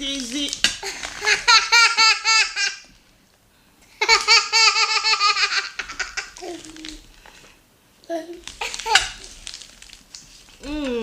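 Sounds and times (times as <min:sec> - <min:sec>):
young child laughing: 0:04.0 - 0:06.7.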